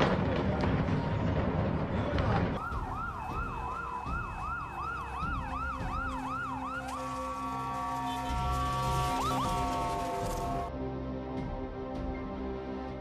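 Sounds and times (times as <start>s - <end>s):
emergency vehicle siren yelping: 2.6s - 10.7s.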